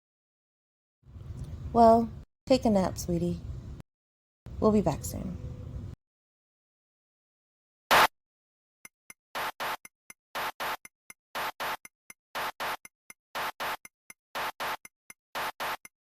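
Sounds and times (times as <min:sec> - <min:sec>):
scratchy swishes: 0:09.4 - 0:09.8, 0:10.4 - 0:10.8, 0:11.4 - 0:11.8, 0:12.4 - 0:12.8, 0:13.4 - 0:13.8, 0:14.4 - 0:14.8, 0:15.4 - 0:15.8.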